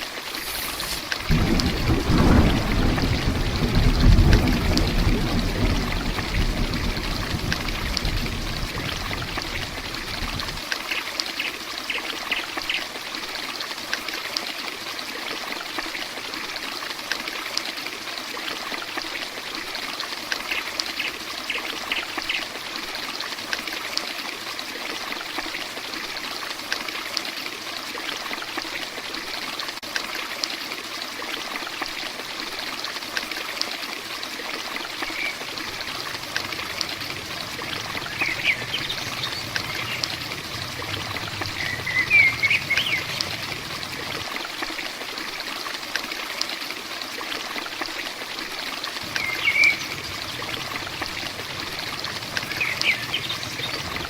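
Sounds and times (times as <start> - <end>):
heavy rain falling: 0.0 - 10.7, 34.6 - 45.1, 48.8 - 54.0
water trickling: 0.0 - 54.0
low rumble: 1.3 - 10.6, 35.4 - 44.4, 49.0 - 54.0.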